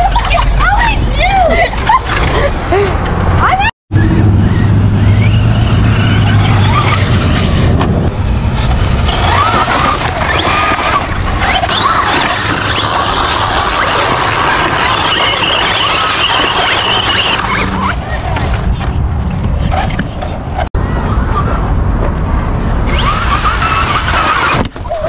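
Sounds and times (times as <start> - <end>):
rc car motor whining: 8.7 - 17.9, 22.9 - 25.0.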